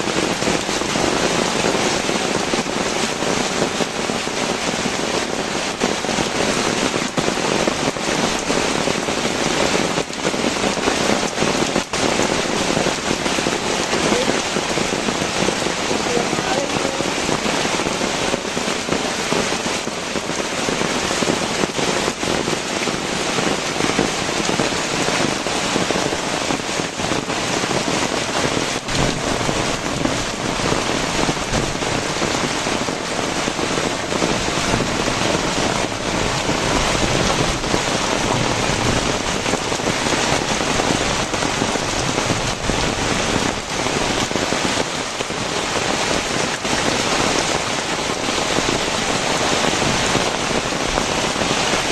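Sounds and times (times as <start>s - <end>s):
heavy rain pouring: 0.0s - 51.9s.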